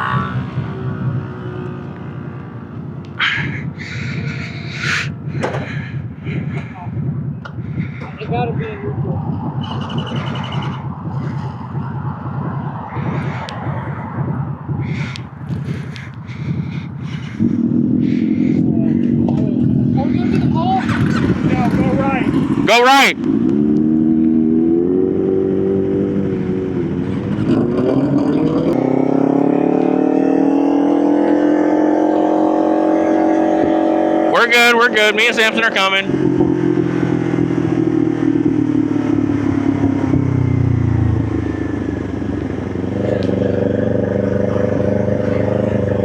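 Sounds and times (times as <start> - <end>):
motorcycle engine idling: 0.0 - 22.7, 36.1 - 46.0.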